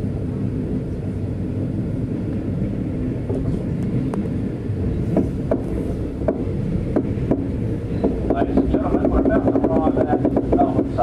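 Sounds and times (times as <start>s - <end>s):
train carriage rumbling: 0.0s - 11.0s
sharp clicks of wheels on track: 5.1s - 11.0s.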